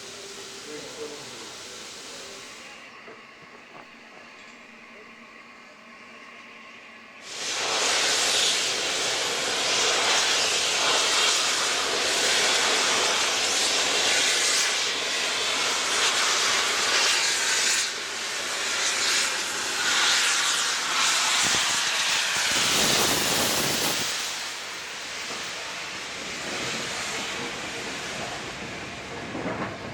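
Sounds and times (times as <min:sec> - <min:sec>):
steam locomotive venting steam: 0:00.0 - 0:04.4, 0:05.9 - 0:29.9.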